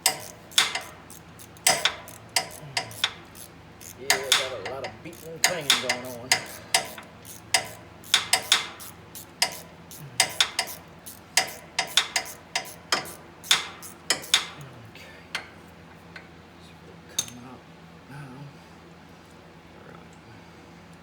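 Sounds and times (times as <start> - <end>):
ratchet clicking and clanking: 0.0 - 14.7.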